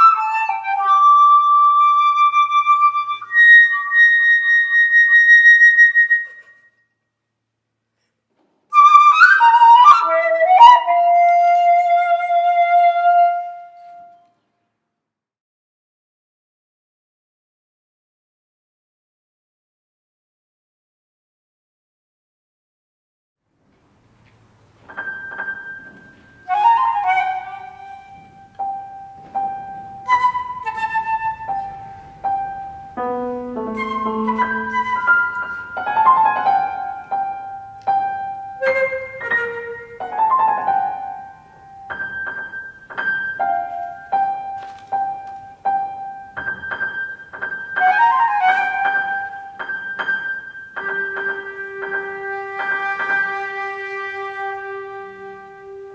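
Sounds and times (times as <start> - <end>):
solo flute: 0.0 - 6.9, 8.7 - 14.4, 25.1 - 41.9, 47.7 - 55.9
piano notes: 23.6 - 55.9.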